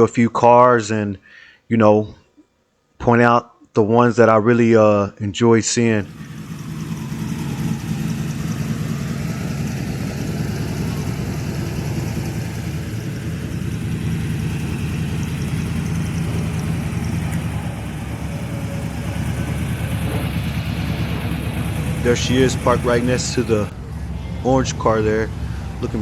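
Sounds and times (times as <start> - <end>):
car engine idling: 6.0 - 26.0.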